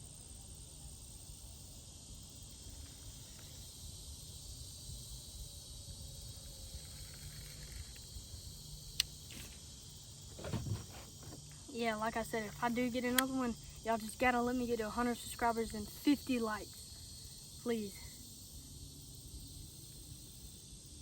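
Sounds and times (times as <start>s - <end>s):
high-pitched insect chirring: 0.0s - 10.3s, 10.9s - 21.0s
thump: 10.3s - 11.4s.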